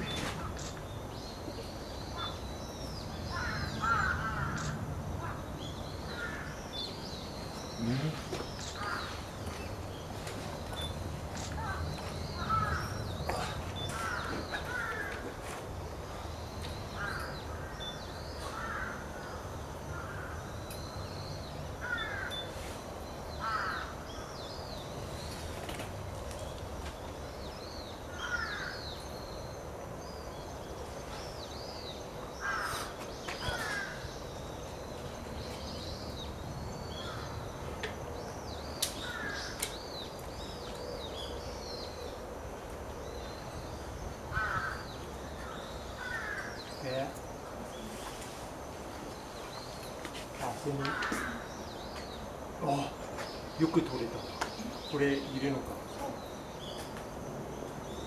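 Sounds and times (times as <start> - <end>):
crows cawing: 3.3 - 5.5, 6.1 - 6.6, 8.8 - 9.3, 11.6 - 15.6, 16.9 - 17.8, 18.4 - 20.5, 21.8 - 22.5, 23.4 - 24.3, 28.1 - 28.9, 32.4 - 34.1, 37.0 - 37.4, 39.0 - 39.6, 44.3 - 46.8, 50.7 - 51.6.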